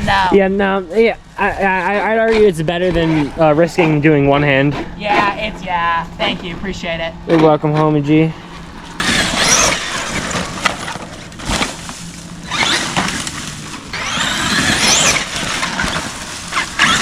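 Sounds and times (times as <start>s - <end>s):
electric motor whine: 0.0s - 17.0s
tyres crunching over ground: 8.2s - 17.0s.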